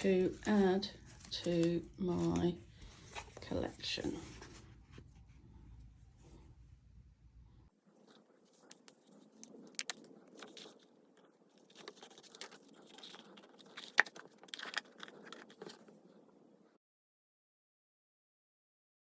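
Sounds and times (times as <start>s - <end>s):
notebook rustling: 0.0s - 5.7s, 7.9s - 16.2s.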